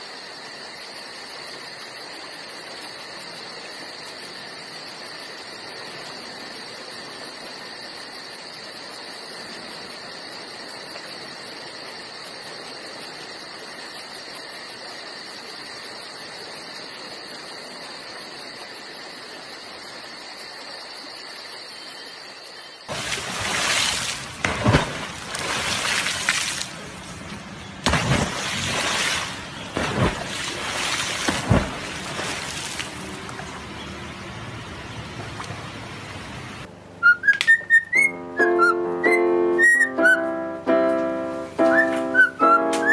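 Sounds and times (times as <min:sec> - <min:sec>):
rushing and splashing water: 0:22.9 - 0:36.7.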